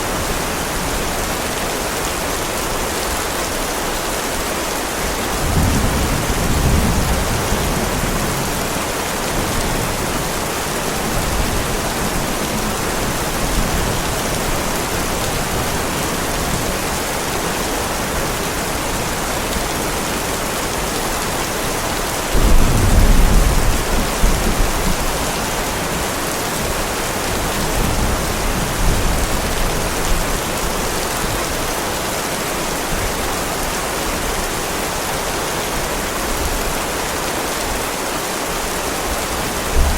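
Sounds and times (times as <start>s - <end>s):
heavy rain falling: 0.0s - 39.9s
rolling thunder: 22.3s - 25.2s.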